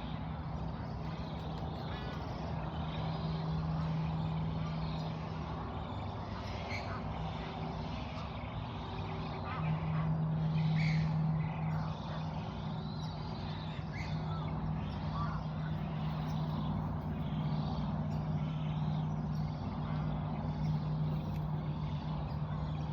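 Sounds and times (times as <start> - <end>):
low mechanical hum: 0.0 - 22.9
faint bird chirps: 0.1 - 22.9.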